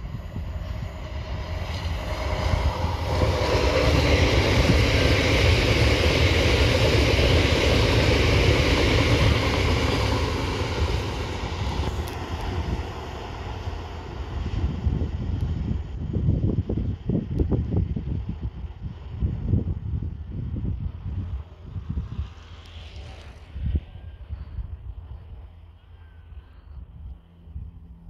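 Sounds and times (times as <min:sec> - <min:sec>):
diesel train passing at speed: 0:00.0 - 0:28.0.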